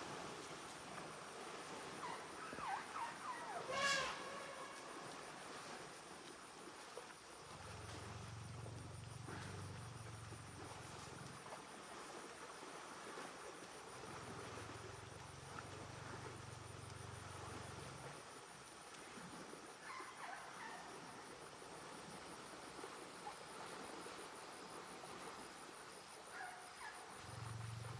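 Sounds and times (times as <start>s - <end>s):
high insect trill: 2.0s - 5.9s.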